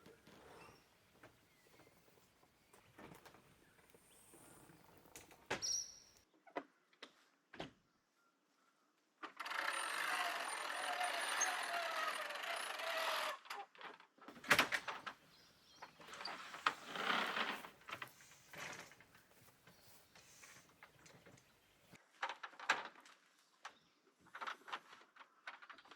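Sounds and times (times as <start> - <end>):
rustling: 14.3 - 22.0
scraping and sliding: 16.0 - 19.1.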